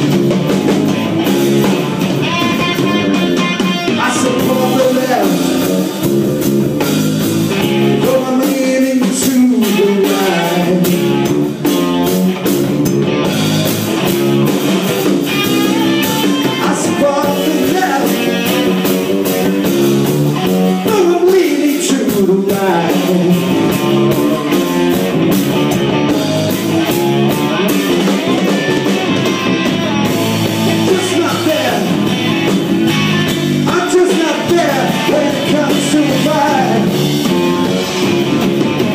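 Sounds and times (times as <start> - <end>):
rock band playing live: 0.0 - 38.9
person singing: 3.9 - 5.6, 8.0 - 11.2, 16.0 - 18.7, 20.8 - 24.5, 33.7 - 37.0.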